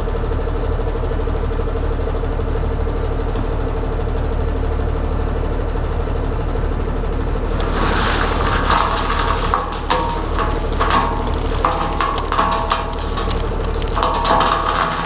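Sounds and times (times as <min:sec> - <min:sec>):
hissing crackling noise: 0:07.5 - 0:15.0.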